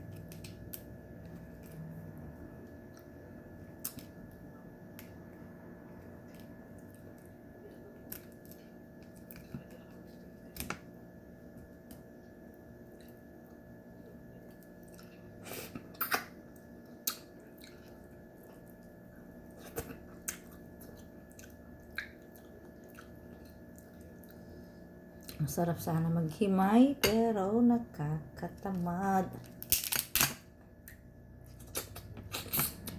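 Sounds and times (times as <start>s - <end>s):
chewing: 12.8s - 24.5s
crab shell cracking: 29.4s - 30.4s.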